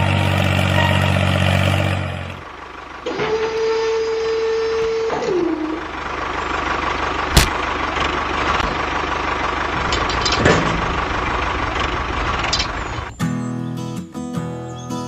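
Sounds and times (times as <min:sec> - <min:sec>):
sharp click: 0:07.4 - 0:07.6.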